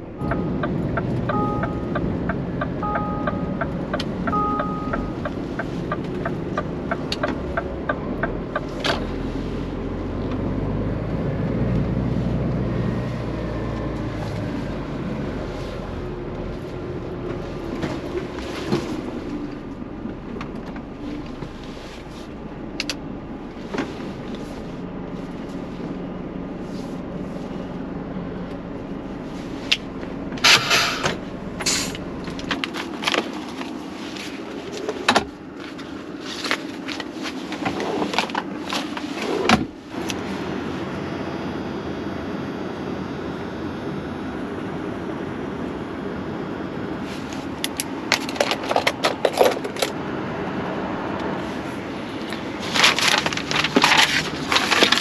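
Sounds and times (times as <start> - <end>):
regular ticking: 0.0 - 8.8
truck engine running: 0.0 - 55.0
short two-tone beeps: 0.2 - 6.0.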